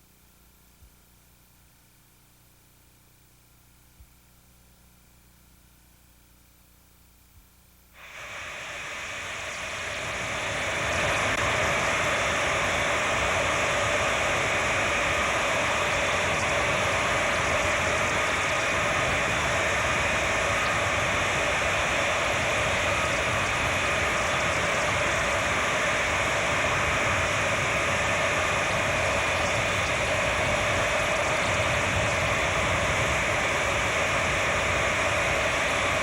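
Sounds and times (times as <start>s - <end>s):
jet engines roaring: 8.0s - 36.0s.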